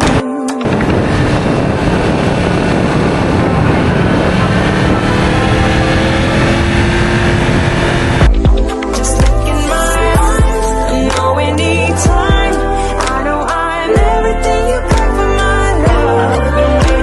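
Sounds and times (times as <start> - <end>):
motorcycle engine rumbling: 0.0 - 10.9.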